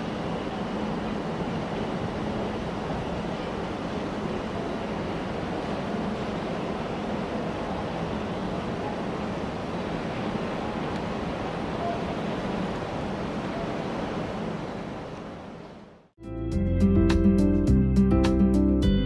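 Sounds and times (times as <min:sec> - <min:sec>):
train running: 0:00.0 - 0:16.0
guitar music: 0:16.2 - 0:19.0.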